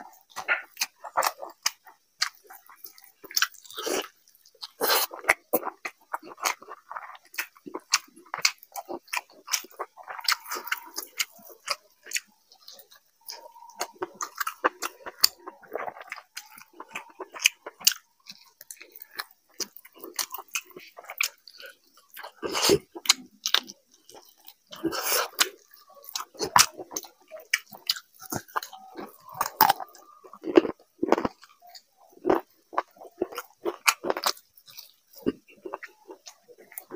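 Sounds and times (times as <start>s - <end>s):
person chewing food: 0.0s - 36.9s.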